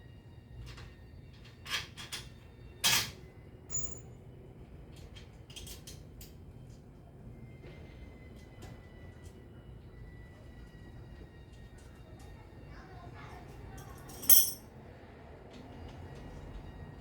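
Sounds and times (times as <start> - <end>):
light knocks and clinks: 3.7 - 4.0, 13.8 - 14.6.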